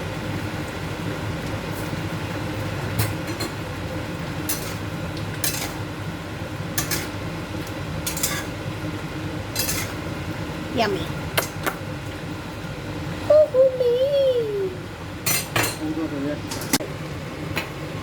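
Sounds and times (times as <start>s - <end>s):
spoon scraping a cooking pot: 8.1s - 8.6s, 9.6s - 10.0s.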